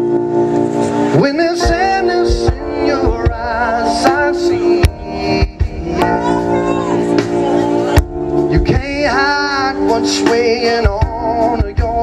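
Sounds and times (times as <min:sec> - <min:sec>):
keyboard chords: 0:00.0 - 0:12.0
live band playing soul-pop: 0:00.0 - 0:12.0
man singing with vibrato: 0:01.1 - 0:12.0.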